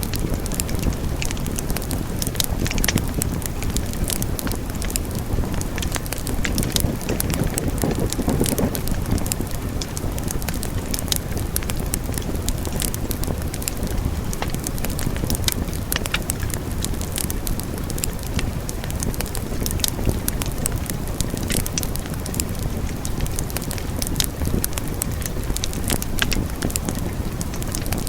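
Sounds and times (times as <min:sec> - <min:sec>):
burning logs crackling and popping: 0:00.0 - 0:28.0
rumble of fire flames: 0:00.0 - 0:28.0.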